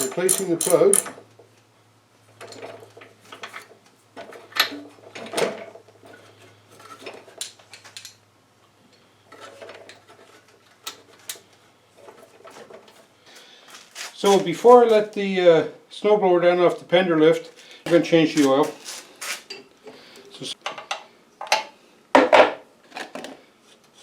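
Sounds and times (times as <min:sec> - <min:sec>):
hand tools clinking on metal: 0:00.0 - 0:01.2.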